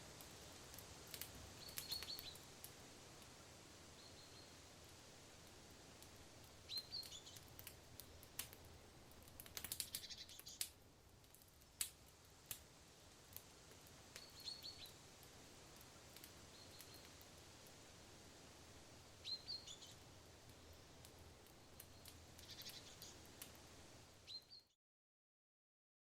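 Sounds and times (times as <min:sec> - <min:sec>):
faint forest ambience: 0:00.0 - 0:24.8
sharp clicks and crackles: 0:00.2 - 0:02.8, 0:06.0 - 0:12.6
small bird chirping: 0:01.6 - 0:02.5, 0:04.0 - 0:04.6, 0:06.7 - 0:08.5, 0:09.8 - 0:10.7, 0:14.2 - 0:15.0, 0:16.5 - 0:17.2, 0:19.2 - 0:20.0, 0:21.8 - 0:23.3, 0:24.2 - 0:24.8.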